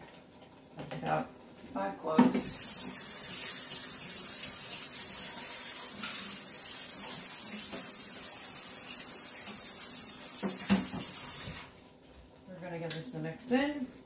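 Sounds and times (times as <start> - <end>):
meat and vegetables sizzling in pan: 2.4 - 11.5.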